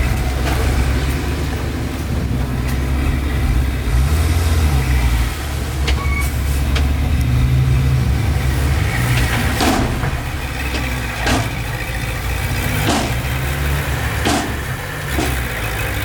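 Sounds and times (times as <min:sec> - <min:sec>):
heavy diesel engine under load: 0:00.0 - 0:16.0
sharp knocks: 0:09.1 - 0:12.0, 0:12.7 - 0:15.7.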